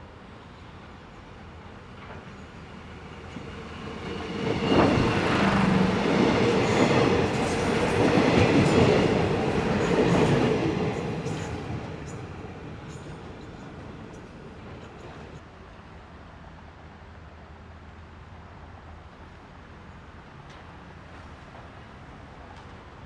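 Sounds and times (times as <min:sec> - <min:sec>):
train rumbling past: 0:00.0 - 0:15.4.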